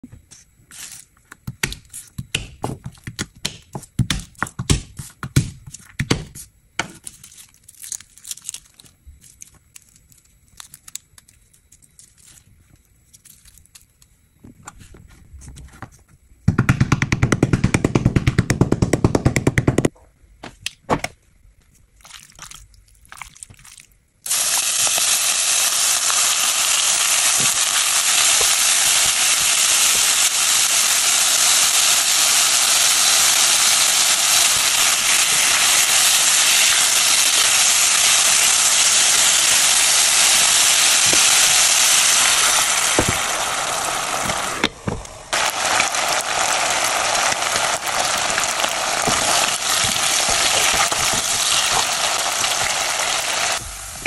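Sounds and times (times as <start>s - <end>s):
chicken skins sizzling in a saucepan: 24.3s - 54.0s.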